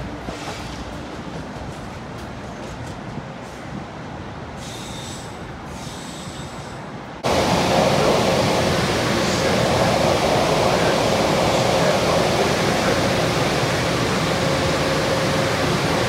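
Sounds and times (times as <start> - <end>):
train approaching rumble: 0.0 - 16.0
loud steady rushing noise: 7.2 - 16.0.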